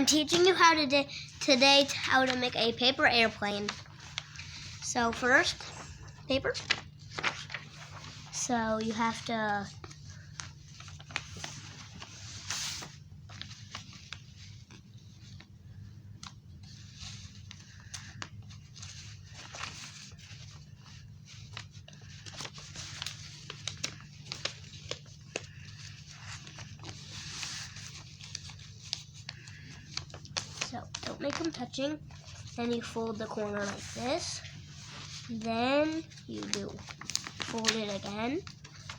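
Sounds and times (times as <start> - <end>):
paper crinkling and rustling: 0.0 - 38.9.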